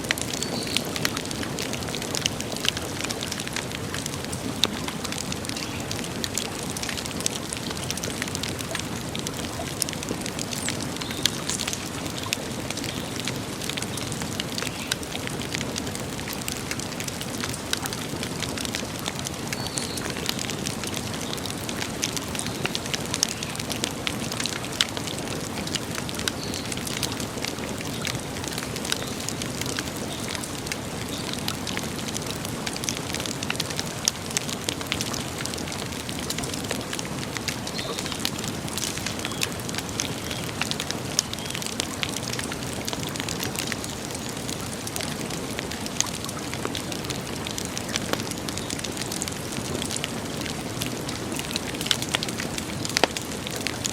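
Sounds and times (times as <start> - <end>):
campfire crackling and popping: 0.0 - 53.9.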